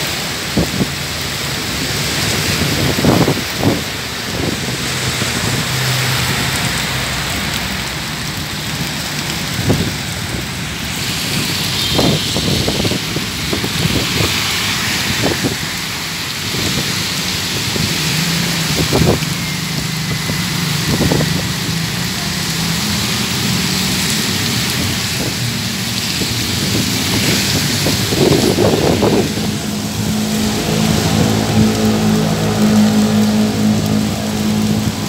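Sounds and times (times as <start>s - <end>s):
cars passing on wet road: 0.0s - 35.0s
heavy rain pouring: 0.0s - 35.0s
low traffic engine hum: 0.0s - 35.0s.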